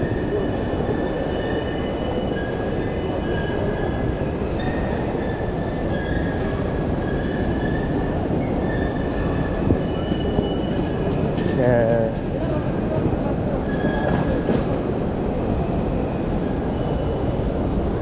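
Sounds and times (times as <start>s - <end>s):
train rumbling: 0.0s - 18.0s
wheels squealing on rails: 0.0s - 18.0s.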